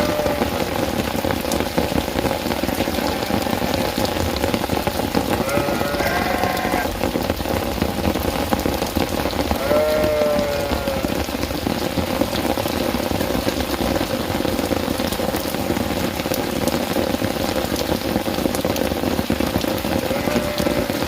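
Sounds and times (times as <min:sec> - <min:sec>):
goat bleating: 0:00.0 - 0:00.6, 0:05.4 - 0:06.9, 0:09.6 - 0:11.1, 0:20.1 - 0:21.0
steady rain patter: 0:00.0 - 0:21.0.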